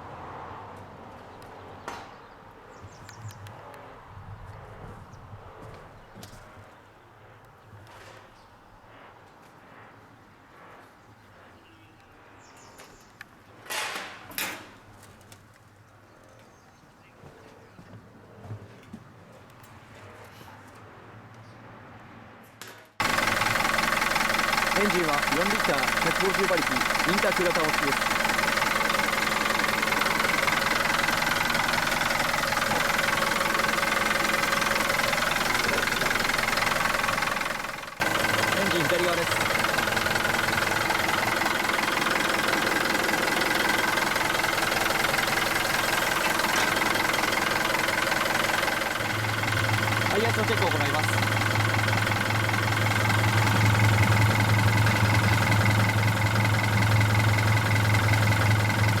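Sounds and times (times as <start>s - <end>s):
diesel engine idling: 23.0s - 59.0s.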